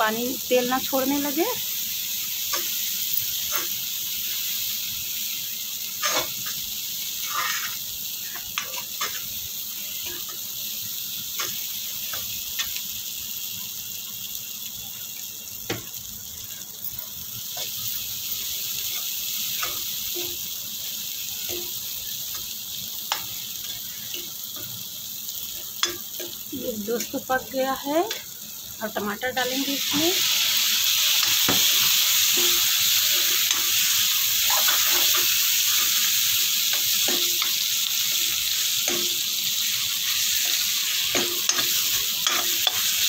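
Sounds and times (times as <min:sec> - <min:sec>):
paste sizzling in oil: 0:00.0 - 0:43.0
metal spoon scraping a pan: 0:06.0 - 0:06.6, 0:07.2 - 0:09.3, 0:31.2 - 0:36.1, 0:39.8 - 0:43.0.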